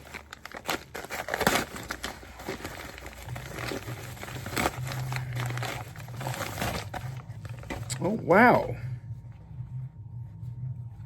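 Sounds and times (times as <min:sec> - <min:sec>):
parcel packaging tearing and crinkling: 0:00.0 - 0:08.2
low steady hum: 0:00.0 - 0:11.0.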